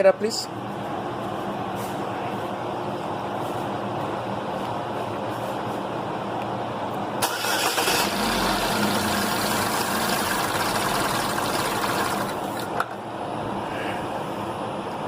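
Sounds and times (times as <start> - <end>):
car engine cranking and running: 7.2 - 12.8.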